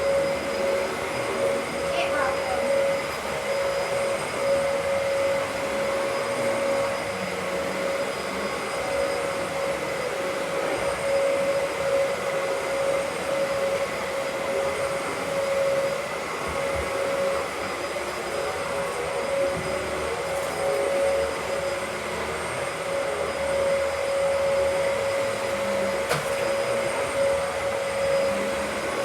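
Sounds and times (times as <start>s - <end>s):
vacuum cleaner running: 0.0s - 29.0s.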